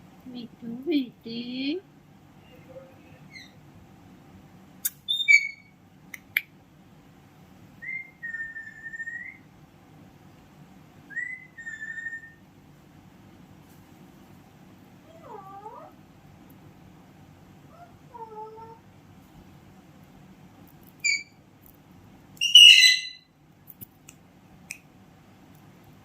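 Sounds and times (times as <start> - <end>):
parrot whistles: 5.1 - 5.7, 7.8 - 9.4, 11.1 - 12.4, 22.4 - 23.3
parrot low dipping call: 22.4 - 23.2.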